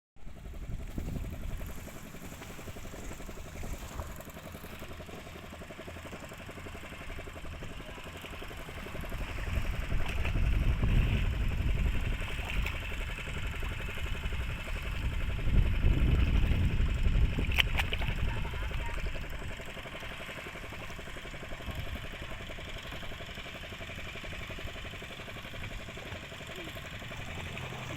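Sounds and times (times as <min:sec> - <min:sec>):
boat engine running: 0:00.2 - 0:27.9.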